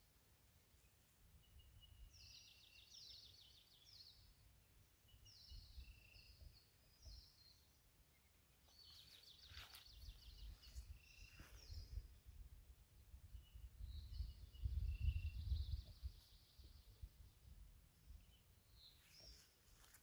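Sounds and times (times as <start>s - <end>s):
low wind rumble: 11.6s - 18.4s.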